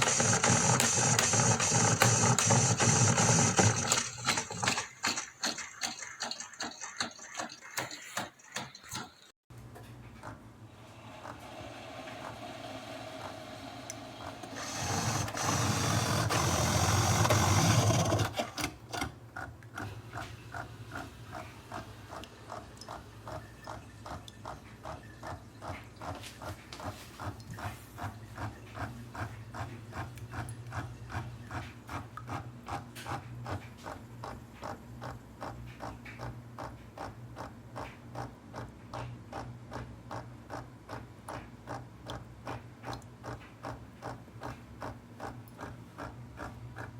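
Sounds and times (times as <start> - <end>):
coffee maker hissing: 0.0 - 5.6, 10.8 - 18.5
coffee maker pulsing: 0.0 - 9.0, 10.2 - 46.9.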